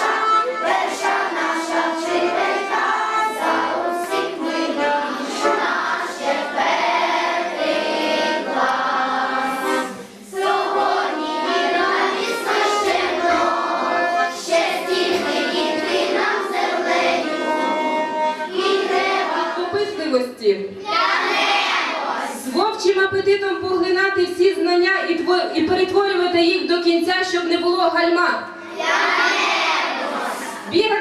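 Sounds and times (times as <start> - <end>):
children singing together: 0.0 - 19.6, 20.8 - 22.5, 28.6 - 30.7
instrumental backing music: 0.0 - 19.8.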